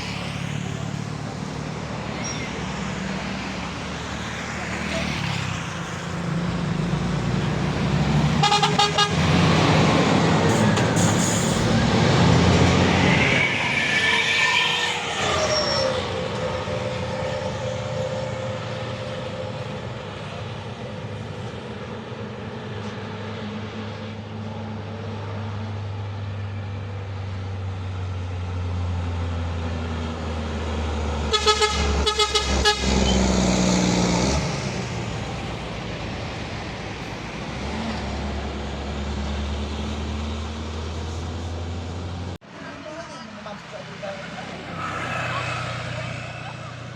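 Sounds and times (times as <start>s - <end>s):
truck engines passing: 0.0s - 46.9s
truck horns tooting: 8.2s - 9.9s, 31.2s - 34.3s.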